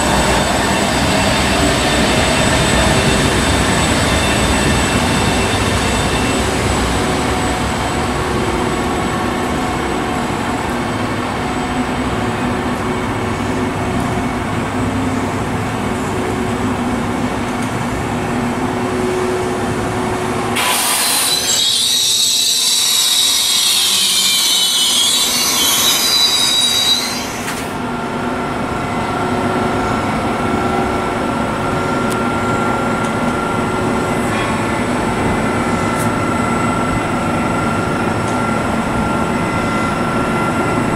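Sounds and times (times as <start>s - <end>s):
train rumbling past: 0.0s - 40.9s
high-pitched wheel squeal: 20.6s - 27.6s.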